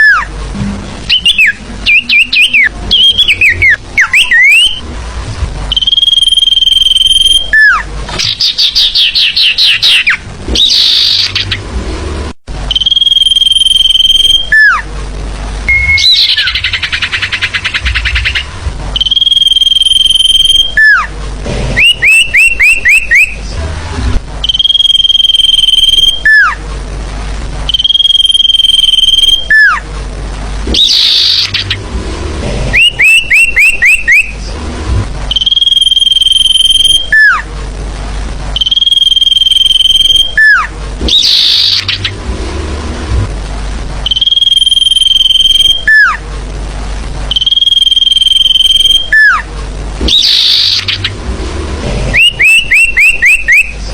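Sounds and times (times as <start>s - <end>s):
bird whistling and trilling: 0.0s - 0.3s, 1.1s - 4.8s, 5.7s - 11.6s, 15.7s - 21.1s, 21.8s - 23.4s, 24.4s - 26.6s, 27.7s - 29.8s, 30.7s - 31.8s, 32.8s - 34.4s, 35.3s - 37.4s, 38.6s - 42.1s, 44.1s - 46.2s, 47.3s - 49.4s, 50.1s - 51.1s, 52.2s - 53.8s.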